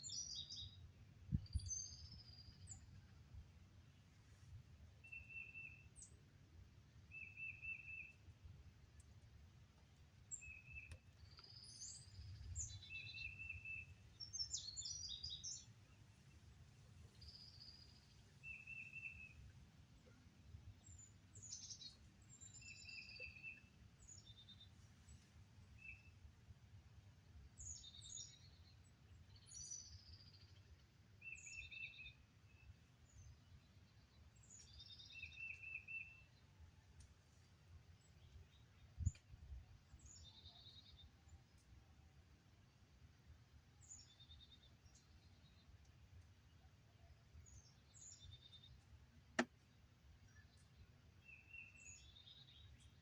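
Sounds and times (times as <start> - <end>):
birds chirping: 10.2 - 26.2.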